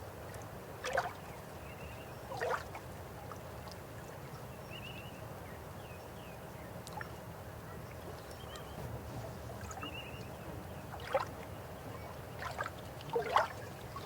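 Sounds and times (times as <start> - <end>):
river water flowing: 0.0 - 5.8, 6.7 - 14.0
water splash: 12.4 - 13.7.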